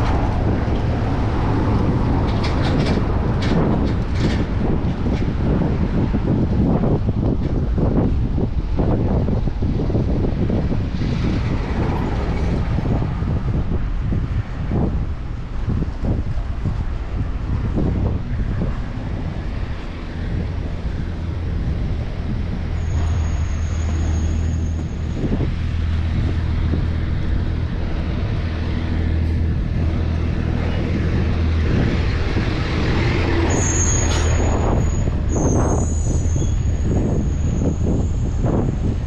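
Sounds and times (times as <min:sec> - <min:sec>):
heavy vehicle engine running: 0:00.0 - 0:39.0
street traffic: 0:00.0 - 0:39.0
thin high squeal: 0:22.8 - 0:25.0, 0:33.5 - 0:38.2.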